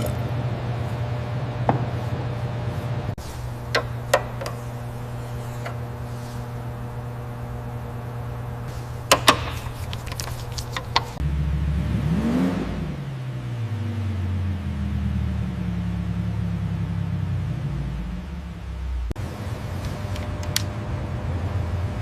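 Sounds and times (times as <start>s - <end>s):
car engine starting and idling: 3.1s - 22.0s.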